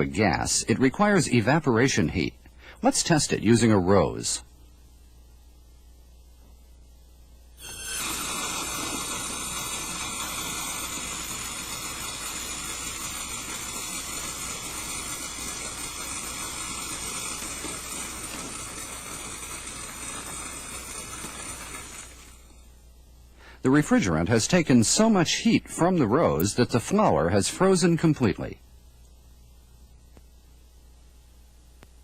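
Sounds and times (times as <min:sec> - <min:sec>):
refrigerant hissing: 0:07.6 - 0:22.7.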